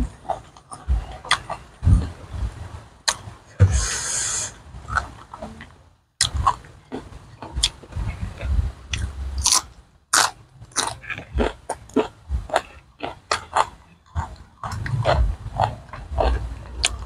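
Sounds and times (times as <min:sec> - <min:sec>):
person chewing crisp vegetables: 0:00.0 - 0:02.2, 0:06.2 - 0:17.0.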